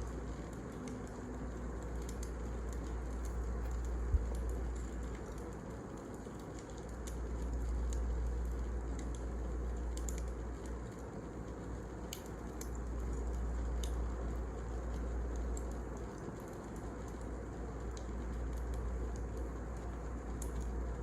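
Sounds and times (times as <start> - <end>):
steady low rumble: 0.0 - 6.0
wood fire crackling: 0.0 - 21.0.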